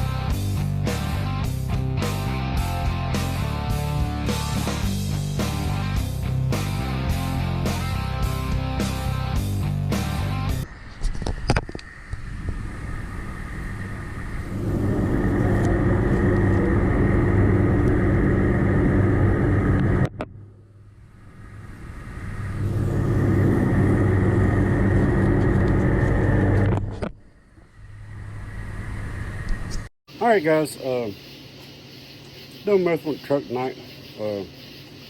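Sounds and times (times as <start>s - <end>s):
vehicle engine running: 0.0s - 10.6s, 14.4s - 21.2s, 22.4s - 27.0s.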